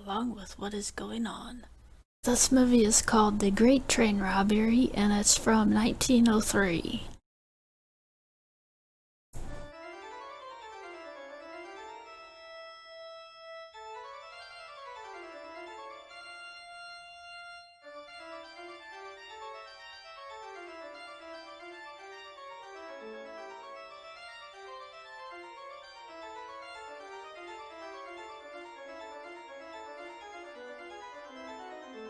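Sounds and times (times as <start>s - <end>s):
keyboard music: 9.6s - 32.0s.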